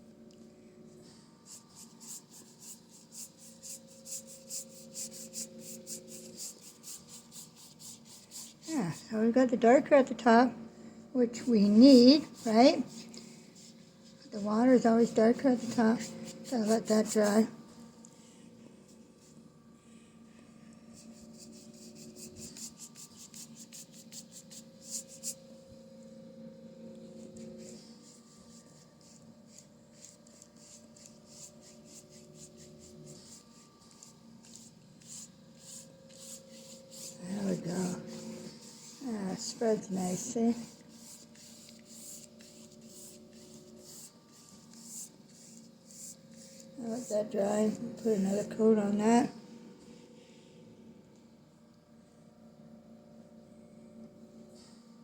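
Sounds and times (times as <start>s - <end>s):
faint steady hum: 0.0s - 55.0s
paintbrush scrubbing on canvas: 1.4s - 9.0s, 11.4s - 17.8s, 20.9s - 25.6s, 27.0s - 48.3s.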